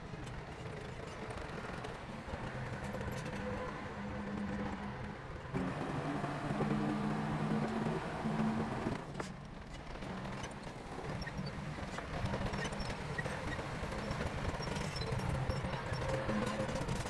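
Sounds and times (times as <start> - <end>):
bulldozer diesel engine running: 0.8 - 9.3.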